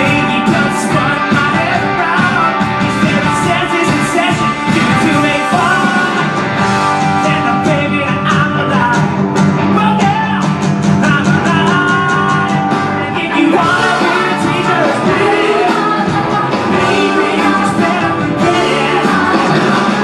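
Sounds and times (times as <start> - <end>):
electric guitar: 0.0 - 20.0
person singing: 0.0 - 20.0
rock band playing: 0.0 - 20.0.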